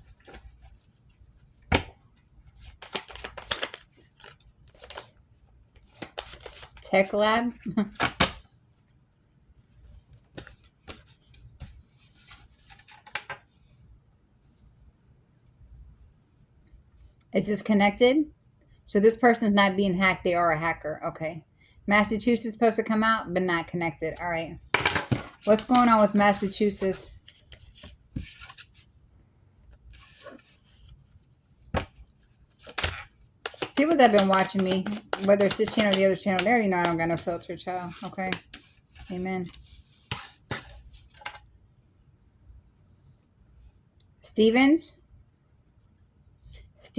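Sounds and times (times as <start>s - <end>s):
playing cards scraping and clicking: 2.6s - 5.1s, 10.2s - 13.4s, 24.8s - 28.8s, 29.9s - 31.2s, 31.8s - 41.5s.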